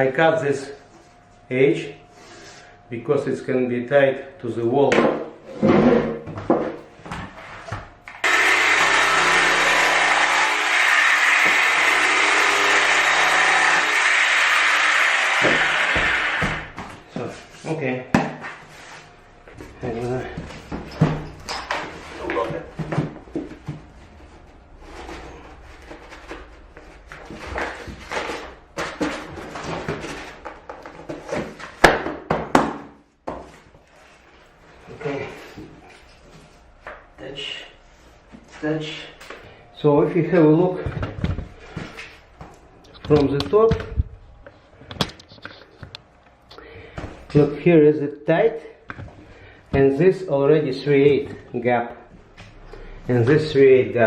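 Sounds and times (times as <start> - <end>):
power tool motor running: 8.2 - 16.7.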